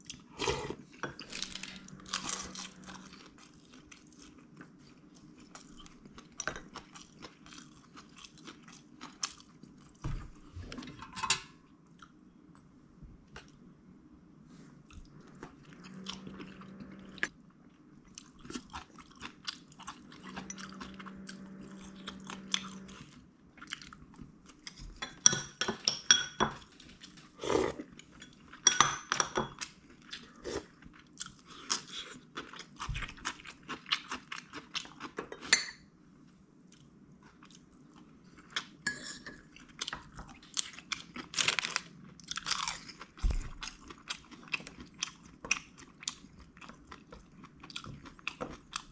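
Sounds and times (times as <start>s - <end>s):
person chewing crunchy food: 0.0s - 10.0s, 14.8s - 24.8s, 29.6s - 35.5s, 39.5s - 48.9s.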